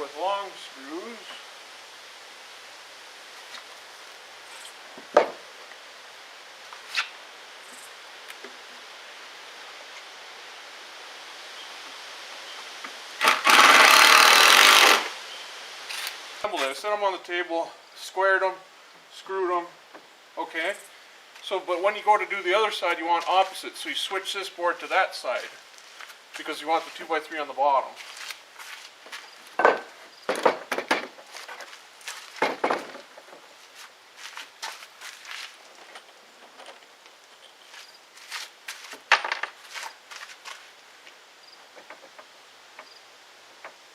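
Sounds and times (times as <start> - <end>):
wooden boards knocking: 5.1 - 5.4, 29.6 - 31.7, 32.4 - 33.4
power drill driving screw: 13.2 - 15.1.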